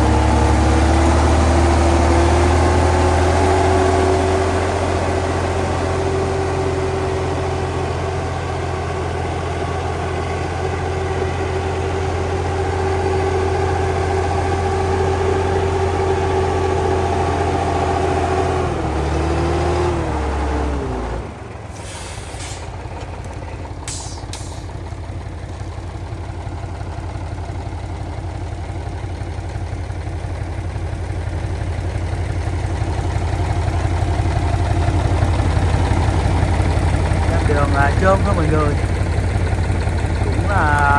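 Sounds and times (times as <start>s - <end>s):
heavy truck engine running: 0.0s - 40.9s
short air hisses: 21.7s - 22.8s, 23.9s - 24.8s.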